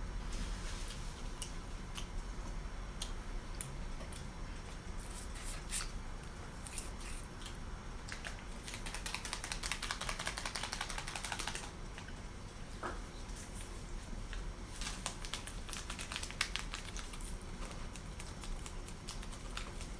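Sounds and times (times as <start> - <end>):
fast crackly clicks: 8.0 - 12.2, 14.3 - 19.9.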